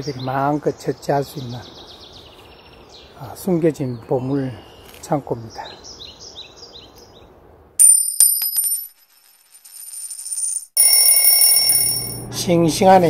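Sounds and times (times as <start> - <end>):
electronic bell-like chime: 10.8 - 12.2.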